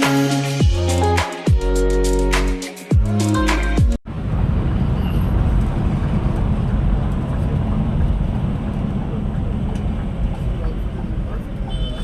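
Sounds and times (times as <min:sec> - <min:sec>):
road noise: 0:04.0 - 0:12.0
bus engine rumble: 0:04.1 - 0:12.0.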